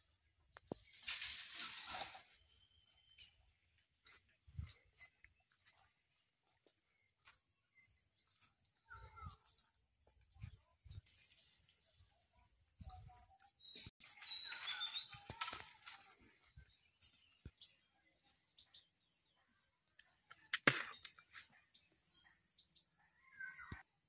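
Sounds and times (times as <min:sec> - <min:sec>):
faint outdoor ambience: 0:00.0 - 0:24.0
bird chirps: 0:02.2 - 0:05.9, 0:12.8 - 0:24.0
sharp click: 0:20.3 - 0:21.2.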